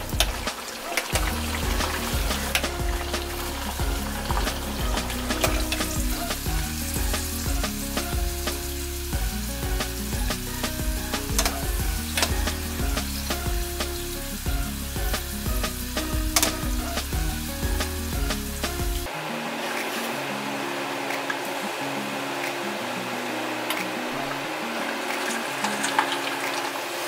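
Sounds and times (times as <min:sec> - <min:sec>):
meat deep-frying in oil: 0:00.0 - 0:19.1, 0:24.8 - 0:27.0.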